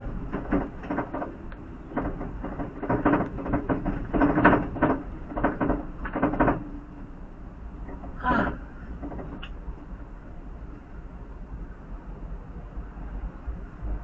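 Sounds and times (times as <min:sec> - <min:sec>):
knocks and rattles: 0:00.0 - 0:06.8, 0:07.8 - 0:09.5
car road rumble: 0:00.0 - 0:14.0.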